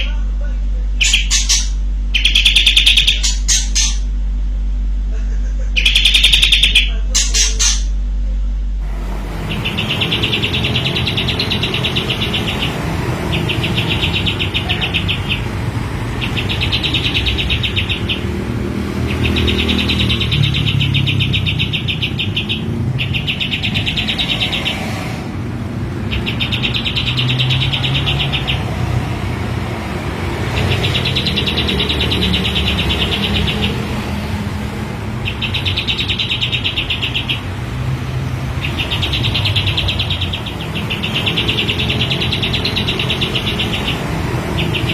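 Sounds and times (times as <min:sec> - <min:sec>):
steady low rumble: 0:00.0 - 0:24.0
bird singing rapid rattling trills: 0:01.0 - 0:04.2, 0:05.6 - 0:08.0, 0:09.2 - 0:44.9.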